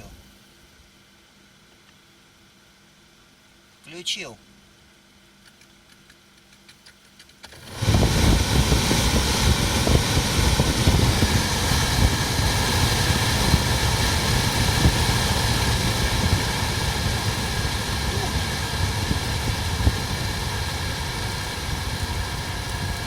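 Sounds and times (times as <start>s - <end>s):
car blower fan rushing air: 7.4s - 23.0s.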